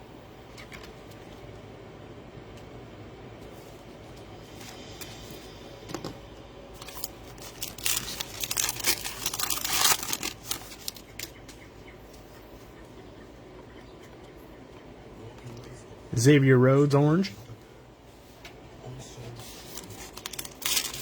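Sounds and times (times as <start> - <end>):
plastic wrapper tearing and crinkling: 6.8 - 11.3, 19.6 - 21.0.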